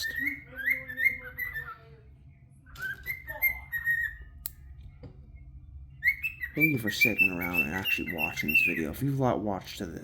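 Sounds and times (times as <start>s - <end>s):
bird whistling: 0.0s - 1.9s, 2.8s - 4.3s, 6.0s - 9.0s.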